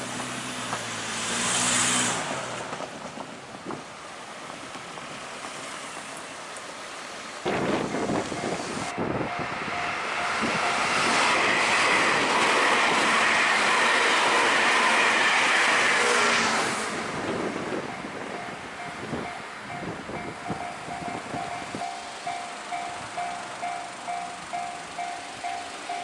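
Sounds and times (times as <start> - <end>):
train passing at speed: 0.0 - 26.0
wheels clattering over rail joints: 2.2 - 6.8.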